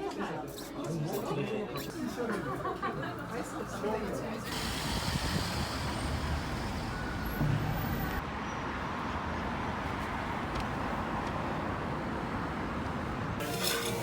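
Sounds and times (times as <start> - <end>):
road traffic rumble and hiss: 1.9 - 14.0.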